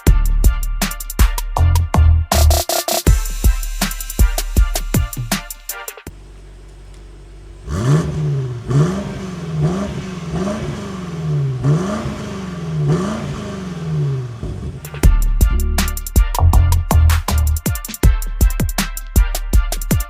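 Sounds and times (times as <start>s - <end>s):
music: 0.0s - 6.1s, 14.8s - 20.0s
car engine revving: 6.1s - 15.1s.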